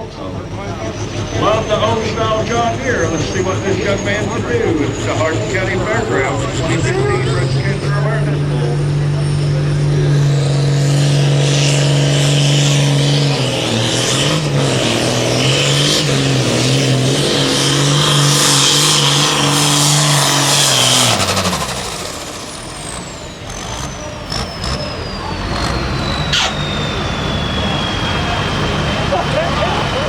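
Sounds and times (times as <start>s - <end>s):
tractor diesel engine at full throttle: 0.0s - 30.0s
turbo whistle: 21.0s - 30.0s.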